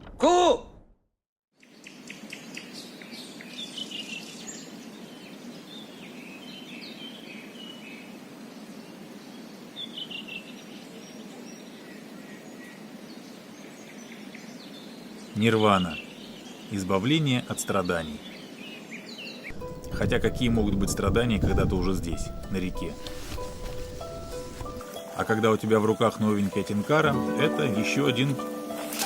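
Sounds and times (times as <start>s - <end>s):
songbirds chirping: 1.6s - 29.0s
steady low rushing: 19.5s - 24.7s.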